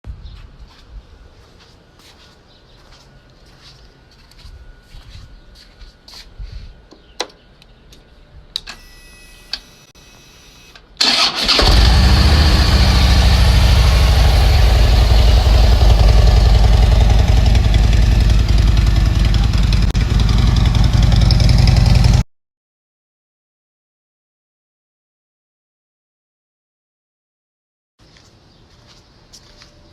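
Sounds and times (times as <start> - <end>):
motorcycle engine cranking and idling: 11.0 - 22.2.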